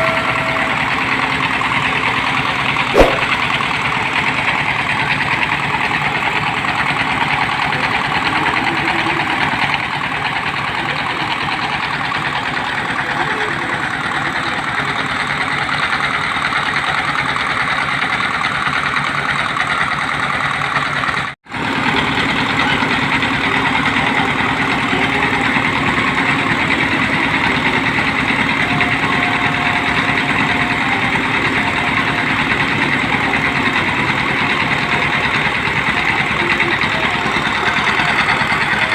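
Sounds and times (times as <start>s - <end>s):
drilling machine engine running: 21.5s - 38.9s.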